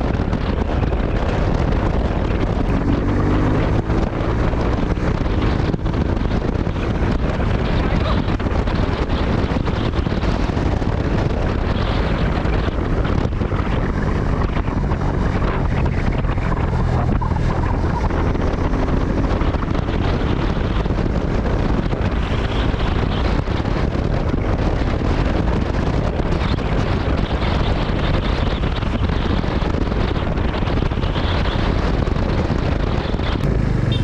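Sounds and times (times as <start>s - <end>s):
faint motorcycle engine: 0.0s - 24.5s, 33.0s - 34.0s
wind rushing over microphone: 0.0s - 34.0s.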